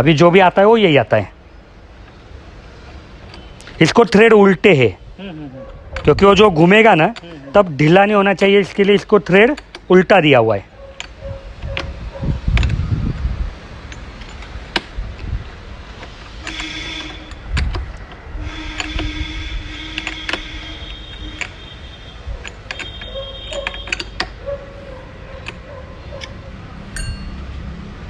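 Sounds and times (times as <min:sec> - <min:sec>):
clicks and light metal knocks: 0:02.8 - 0:04.2, 0:10.8 - 0:27.6.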